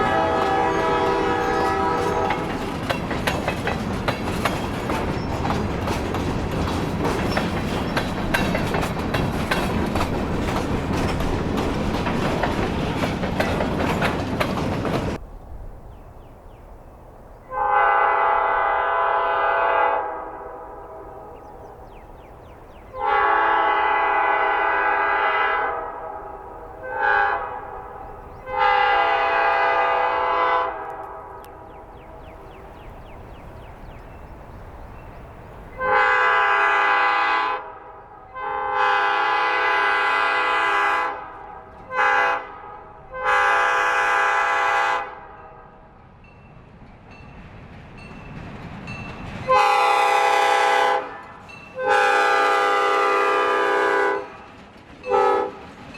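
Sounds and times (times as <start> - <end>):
locomotive air horn blasts: 0.0 - 2.6, 17.5 - 21.3, 22.9 - 27.9, 28.5 - 31.4, 35.8 - 45.4, 49.5 - 54.4, 55.1 - 55.6
low train rumble: 0.0 - 55.9.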